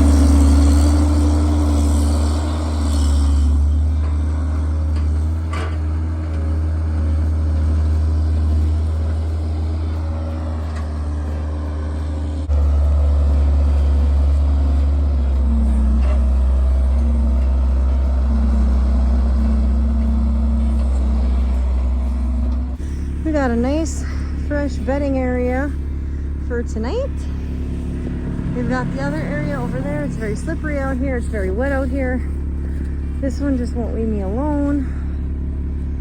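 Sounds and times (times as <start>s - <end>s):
vehicle engine humming: 0.0s - 36.0s.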